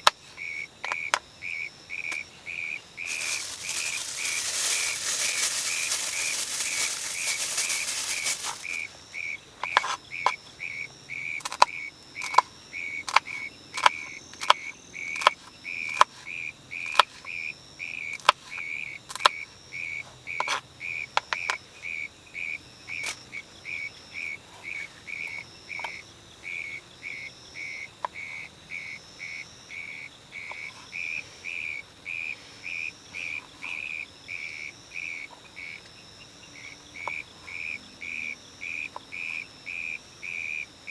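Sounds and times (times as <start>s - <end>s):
insect chirping: 0.0s - 40.9s
loud hiss: 3.1s - 9.0s.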